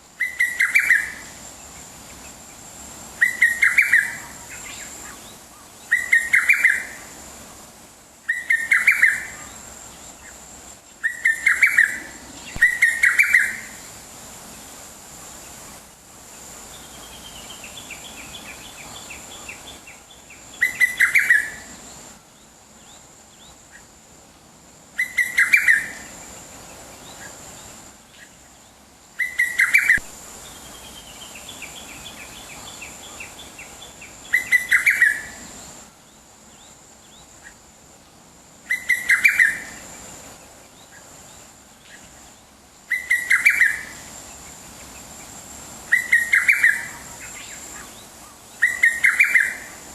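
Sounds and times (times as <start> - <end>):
birds chirping rapidly: 8.3 - 13.8, 45.9 - 49.9.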